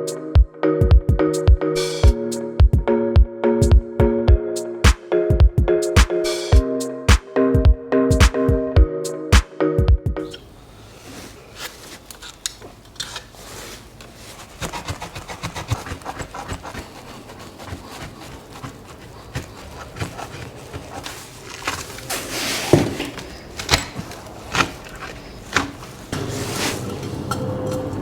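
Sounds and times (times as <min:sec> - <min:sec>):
irregular clicks and taps: 0:04.8 - 0:06.3
rubbing and scraping: 0:13.0 - 0:23.2, 0:24.0 - 0:27.2.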